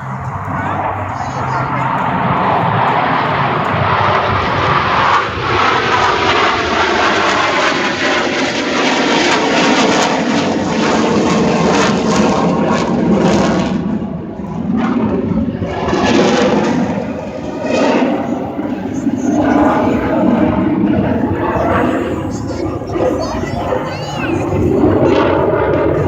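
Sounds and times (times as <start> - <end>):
aircraft engine flying past: 0.0 - 26.0.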